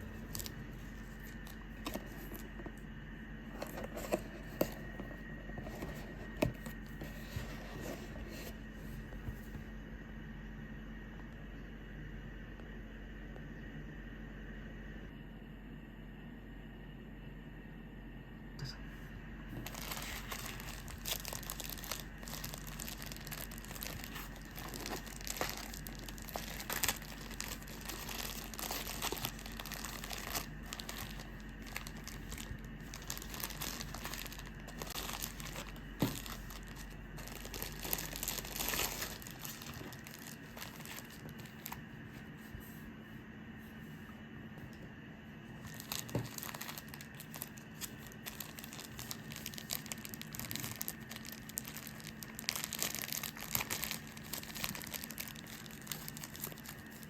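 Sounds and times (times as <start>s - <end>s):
material crinkling and rustling: 0.0s - 2.8s, 3.5s - 9.6s, 19.5s - 42.8s, 45.6s - 57.0s
low steady hum: 0.0s - 57.0s.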